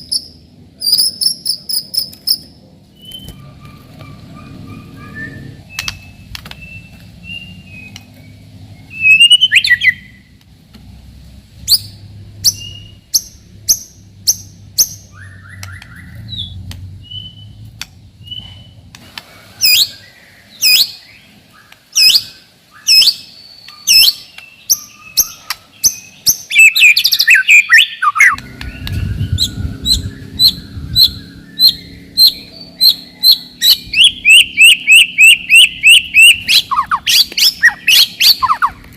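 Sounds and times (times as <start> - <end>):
bird singing whistled notes: 0.0 - 10.3, 11.7 - 18.8, 19.6 - 38.8
low hum: 28.4 - 34.6.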